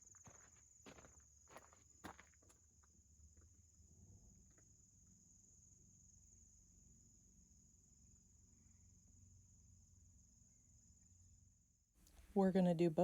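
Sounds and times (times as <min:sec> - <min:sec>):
soft footsteps on trail: 0:00.0 - 0:02.6.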